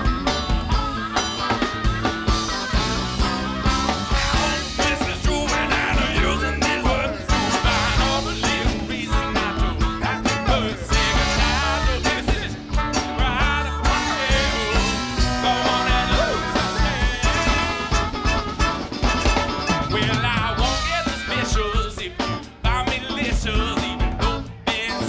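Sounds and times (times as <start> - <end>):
funk band playing live: 0.0 - 25.0.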